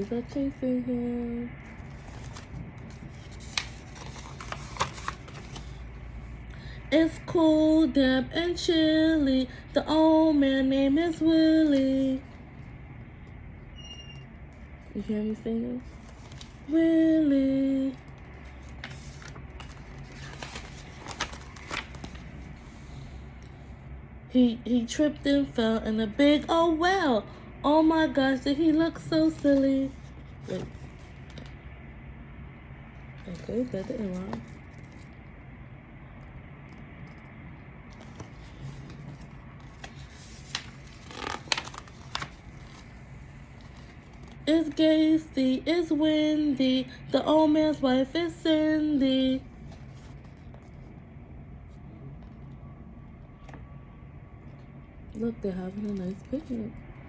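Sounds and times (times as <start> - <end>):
low room hum: 0.0 - 57.0
paper rustles and clicks: 1.8 - 5.8, 18.1 - 22.5, 29.2 - 31.6, 37.9 - 44.4.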